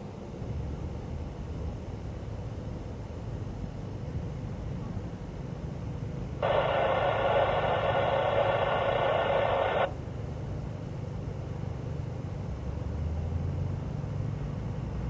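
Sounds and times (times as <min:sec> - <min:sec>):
steady low rumble: 0:06.4 - 0:09.9
radio burst hissing with tones: 0:06.4 - 0:10.0.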